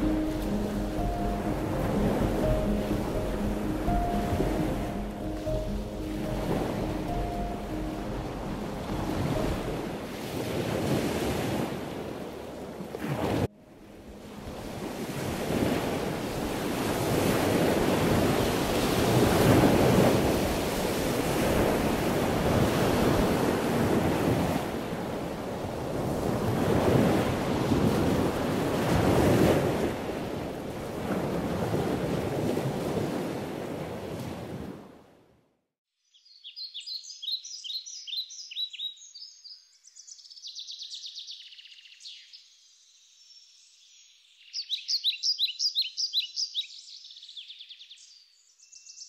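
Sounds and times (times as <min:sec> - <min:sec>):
wind buffeting microphone: 0:00.0 - 0:34.8.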